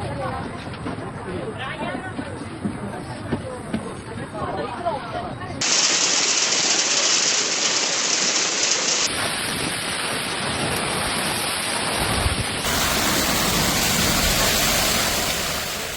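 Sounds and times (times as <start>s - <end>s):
heavy rain pouring: 5.6s - 15.9s.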